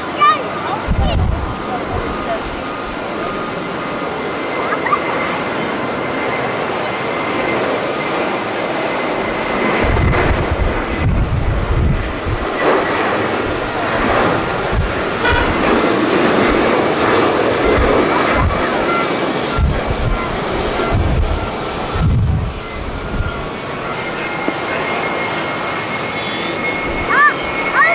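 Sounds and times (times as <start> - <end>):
jet engine rushing: 0.0 - 27.9
wind buffeting microphone: 0.0 - 27.9.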